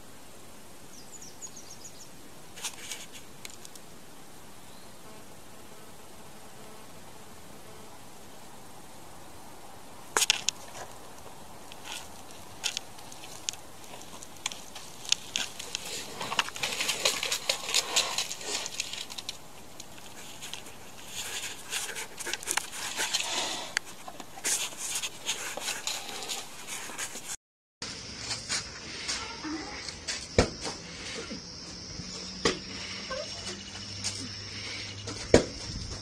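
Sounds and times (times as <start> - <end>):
rustling in forest litter: 2.5 - 3.9, 10.1 - 30.2
claws scratching tree trunk: 10.2 - 27.4.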